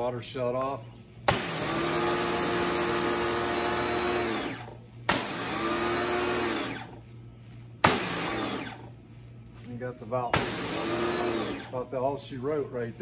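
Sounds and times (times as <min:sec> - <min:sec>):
pressure washer motor whine: 0:01.2 - 0:09.1, 0:10.1 - 0:12.4.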